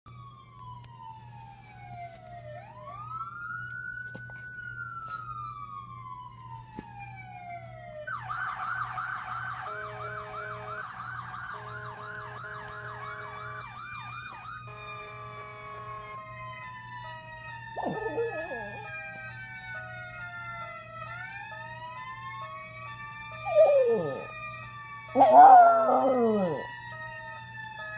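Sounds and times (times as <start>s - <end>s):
emergency vehicle sirens: 0.1s - 27.9s
dog howling: 17.8s - 18.9s, 23.4s - 24.3s, 25.2s - 26.7s.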